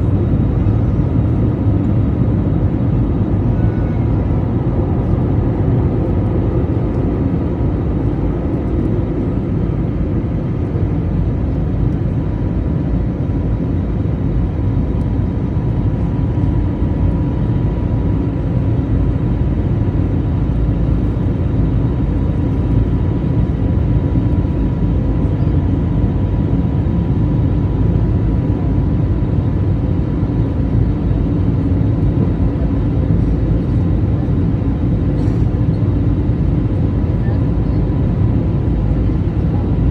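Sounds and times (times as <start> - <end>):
jet engines droning in cabin: 0.0 - 39.9.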